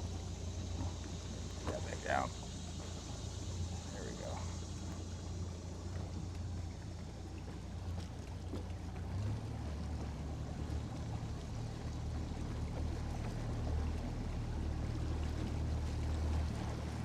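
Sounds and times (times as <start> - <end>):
water hissing: 0.0 - 5.6
outboard motor droning: 0.0 - 17.0
wind: 0.0 - 17.0.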